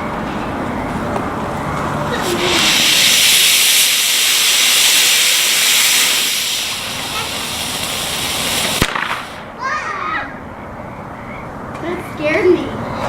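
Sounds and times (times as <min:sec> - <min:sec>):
rocket motor rushing hiss: 0:02.1 - 0:09.5.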